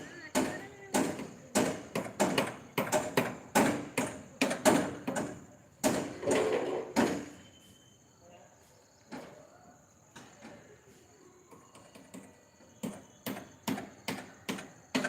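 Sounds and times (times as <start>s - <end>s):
sharp construction knocks and bangs: 0.3s - 7.4s, 11.7s - 15.0s.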